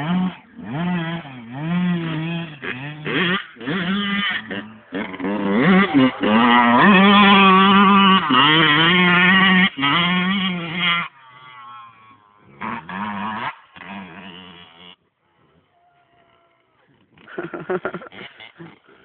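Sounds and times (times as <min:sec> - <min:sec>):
two-stroke motorbike engine revving: 0:00.0 - 0:15.2.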